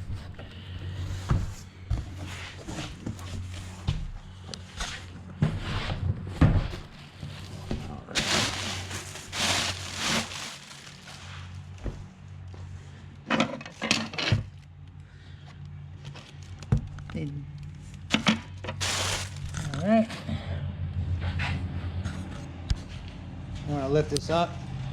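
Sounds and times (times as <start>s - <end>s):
cardboard being handled: 6.6s - 11.8s, 18.8s - 19.8s
packing material rustling: 6.8s - 11.8s, 18.7s - 19.8s.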